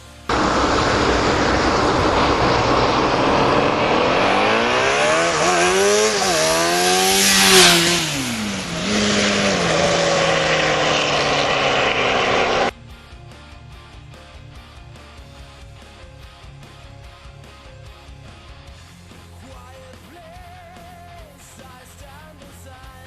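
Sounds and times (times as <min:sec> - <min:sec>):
motorcycle engine revving: 0:00.0 - 0:12.7
tyre noise: 0:00.3 - 0:12.7
wind rushing: 0:00.3 - 0:12.7.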